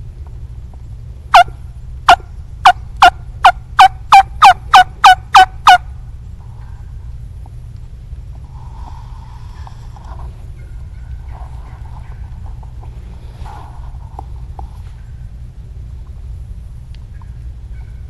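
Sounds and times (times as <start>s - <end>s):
low background rumble: 0.0s - 18.0s
turkey yelping: 2.1s - 5.9s.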